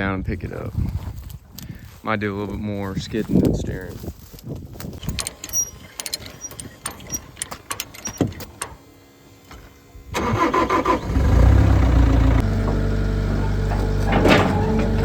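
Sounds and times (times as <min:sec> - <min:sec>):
sharp clicks and knocks: 0:04.8 - 0:08.8
engine cranking and idling: 0:05.0 - 0:15.0.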